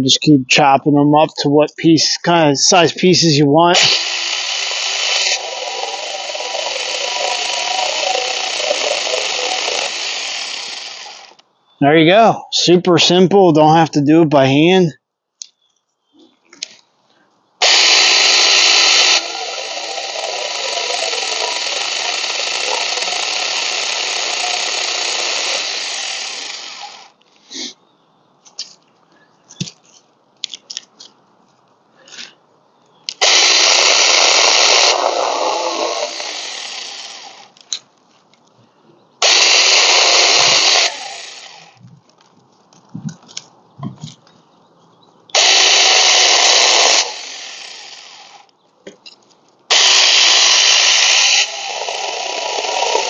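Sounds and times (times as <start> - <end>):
mini chainsaw cutting branches: 3.7 - 11.4, 17.6 - 27.2, 33.1 - 37.7, 39.2 - 41.8, 45.3 - 48.5, 49.7 - 53.0.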